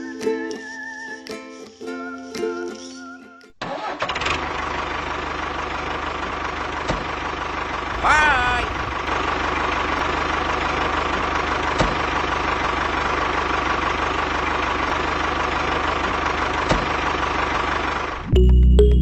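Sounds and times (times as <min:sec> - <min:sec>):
music: 0:00.0 - 0:03.6, 0:18.3 - 0:19.0.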